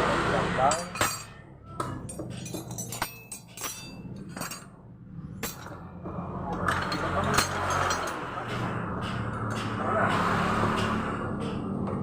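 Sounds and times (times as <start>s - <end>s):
metal tools clinking on bolts: 0.7s - 4.8s, 5.4s - 5.9s, 6.5s - 9.8s.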